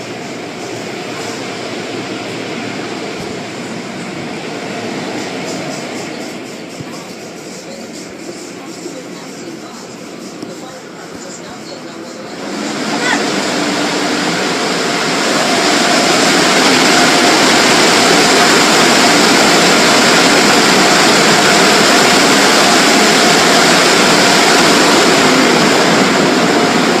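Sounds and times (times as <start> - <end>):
car wash air blowers rushing: 0.0 - 27.0.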